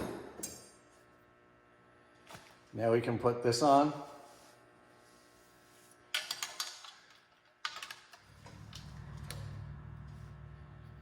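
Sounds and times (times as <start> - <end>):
steady low hum: 8.1 - 11.0.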